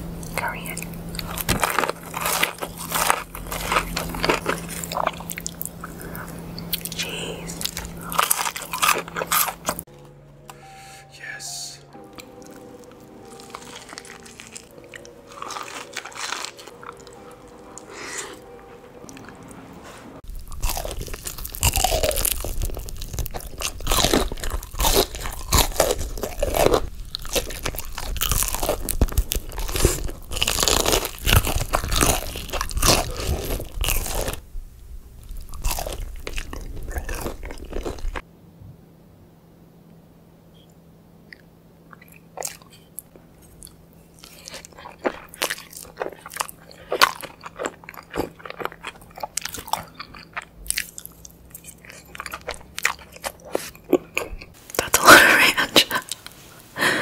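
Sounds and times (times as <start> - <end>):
crunching bites and chewing: 0.2 - 9.8, 12.1 - 18.4, 20.3 - 34.4, 35.2 - 38.2, 41.3 - 55.0.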